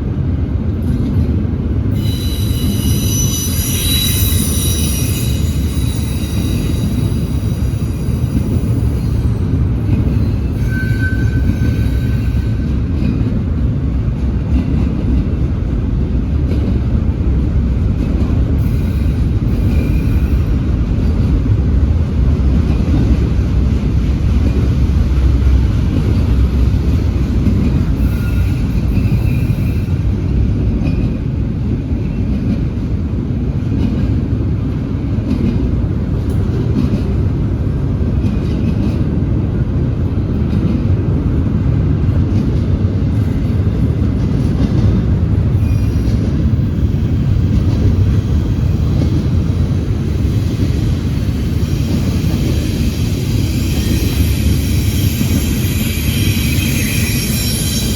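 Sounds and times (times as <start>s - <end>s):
freight train wheels rumbling: 0.0s - 57.9s
high squeals: 2.0s - 9.4s, 10.2s - 12.5s, 53.4s - 57.9s.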